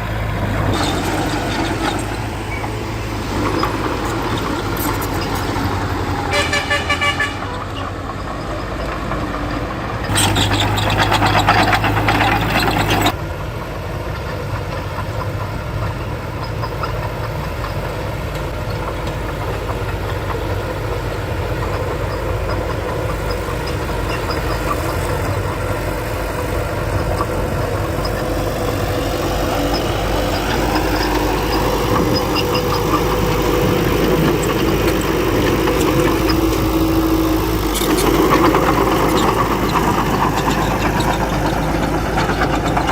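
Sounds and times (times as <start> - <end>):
heavy machinery diesel engine: 0.0 - 42.9.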